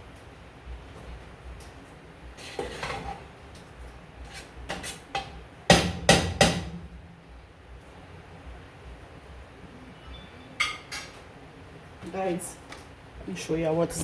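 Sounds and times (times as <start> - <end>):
pots and utensils clattering: 2.4 - 3.3.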